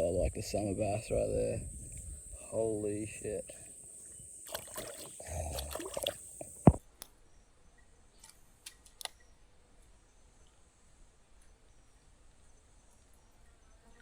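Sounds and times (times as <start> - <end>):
insect chorus: 0.0 - 6.8
splashing and handling noises: 4.4 - 6.8.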